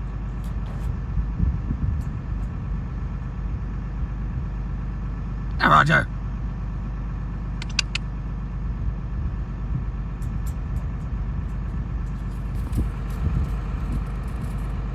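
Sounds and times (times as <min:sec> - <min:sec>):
vehicle engine idling: 0:00.0 - 0:14.9
short sharp clicks: 0:07.6 - 0:08.1.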